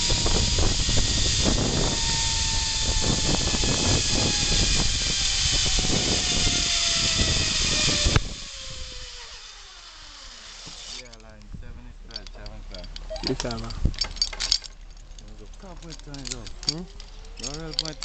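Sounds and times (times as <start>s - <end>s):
wind rush: 0.0s - 9.2s
zip line pulley whine: 0.0s - 11.0s, 13.0s - 13.7s, 16.7s - 18.0s.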